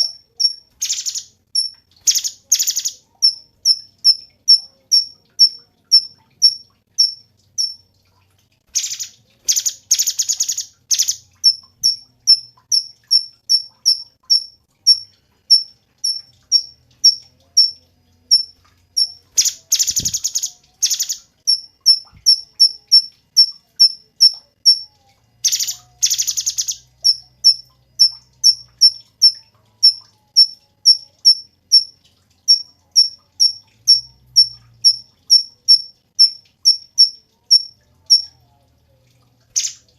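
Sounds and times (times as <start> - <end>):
bird rattling trills: 0.0 - 3.8
bird chirping: 0.0 - 7.8, 8.7 - 31.9, 39.5 - 39.9.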